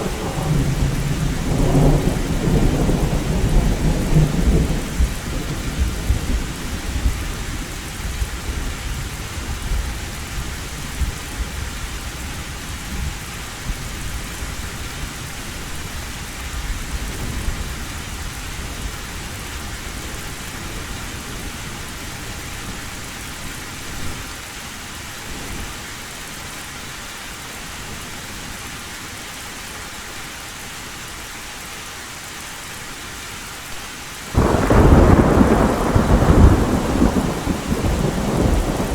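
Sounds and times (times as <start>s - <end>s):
thunder rumble: 0.0s - 7.4s, 34.3s - 38.9s
heavy rain on a metal roof: 0.0s - 38.9s.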